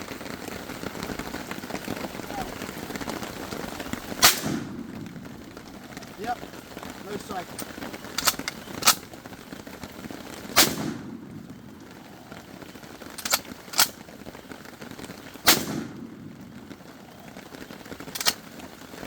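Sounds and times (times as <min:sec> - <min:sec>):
loud shotgun shots: 0:04.2 - 0:04.9, 0:10.6 - 0:11.2, 0:15.5 - 0:16.0
thin sharp cracks: 0:04.2 - 0:05.1, 0:07.5 - 0:09.1, 0:13.2 - 0:14.0, 0:18.0 - 0:18.5
low rumble: 0:04.2 - 0:06.2.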